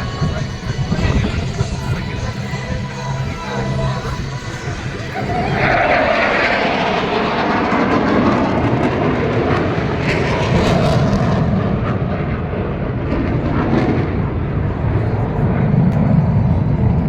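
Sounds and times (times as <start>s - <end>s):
jet engine roar with crackle: 0.0s - 17.0s.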